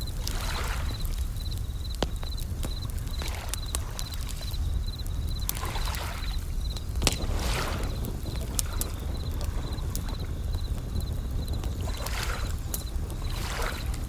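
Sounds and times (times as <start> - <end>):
crickets chirping: 0.0 - 14.0
wood fire crackling: 0.0 - 14.0
waves washing in: 5.3 - 14.0.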